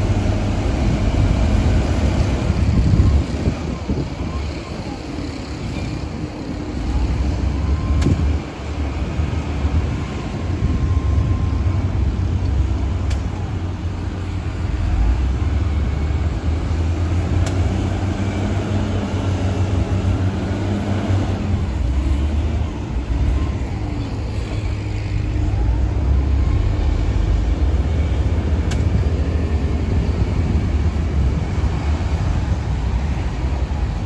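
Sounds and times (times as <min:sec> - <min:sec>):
bulldozer diesel engine rumbling: 0:00.0 - 0:34.0.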